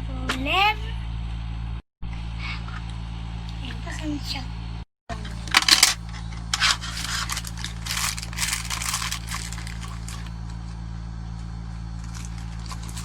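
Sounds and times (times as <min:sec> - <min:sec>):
steady low hum: 0:00.0 - 0:13.0
plastic packaging rustling: 0:05.3 - 0:10.5, 0:12.0 - 0:13.0.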